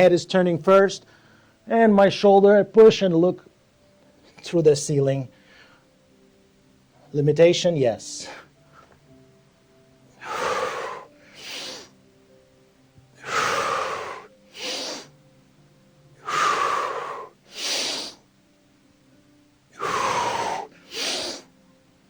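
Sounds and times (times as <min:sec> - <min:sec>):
faint background music: 0:00.0 - 0:22.0
man breathing hard: 0:01.1 - 0:01.6, 0:05.3 - 0:06.0, 0:10.2 - 0:12.0, 0:13.2 - 0:15.2, 0:16.2 - 0:18.2, 0:19.8 - 0:21.5.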